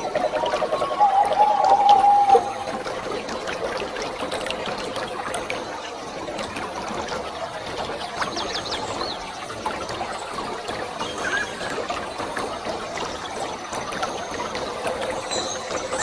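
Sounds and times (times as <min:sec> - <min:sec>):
waterfall rushing: 0:00.0 - 0:03.4
pitched bird call: 0:00.7 - 0:02.8
small birds chirping: 0:14.3 - 0:16.0.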